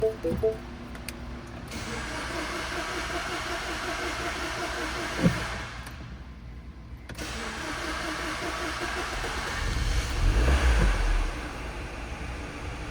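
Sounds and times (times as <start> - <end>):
car engine cranking on starter: 1.7 - 5.9, 7.2 - 12.4.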